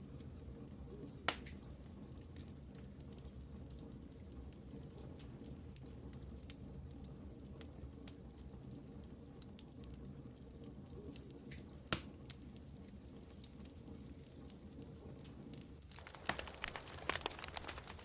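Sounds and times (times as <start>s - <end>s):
wood fire crackling: 13.3s - 18.0s.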